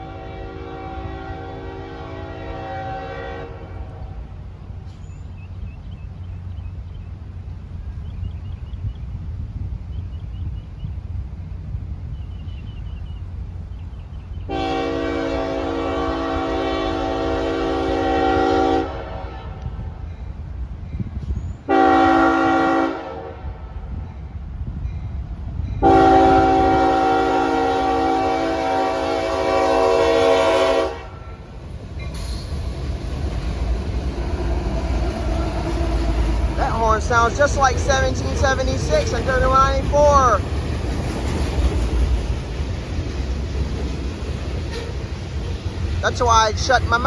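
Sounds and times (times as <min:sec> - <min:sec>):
locomotive horn blasts: 0:00.0 - 0:04.2, 0:14.5 - 0:19.8, 0:21.7 - 0:23.7, 0:25.8 - 0:31.4, 0:44.7 - 0:45.0
train rumble: 0:00.0 - 0:47.0.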